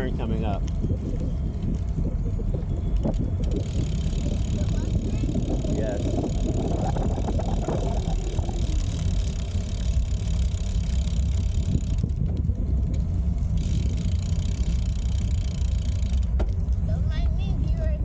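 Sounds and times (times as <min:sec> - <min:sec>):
bicycle tyre noise on path: 0:00.0 - 0:18.0
wind rumbling on microphone: 0:00.0 - 0:18.0.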